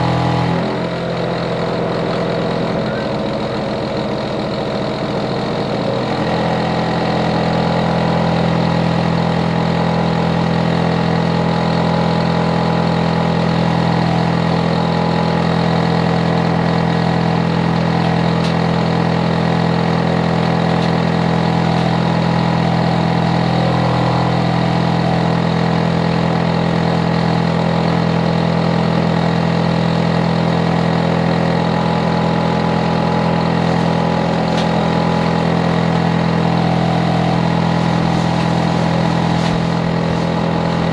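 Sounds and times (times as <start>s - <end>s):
air conditioner unit humming: 32.8s - 40.9s.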